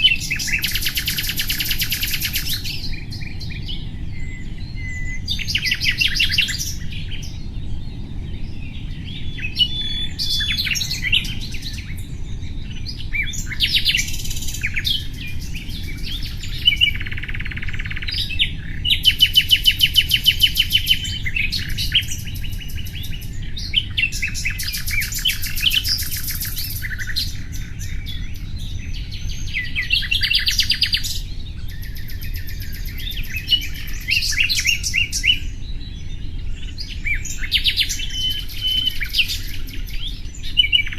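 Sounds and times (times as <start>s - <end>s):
nightingale singing: 0.0s - 40.9s.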